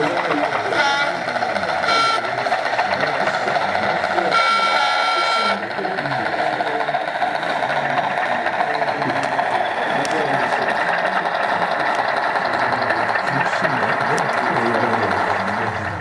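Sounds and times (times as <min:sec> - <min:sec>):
high steady tone: 0:00.0 - 0:06.9
background chatter: 0:00.0 - 0:16.0
model train motor humming: 0:00.0 - 0:16.0.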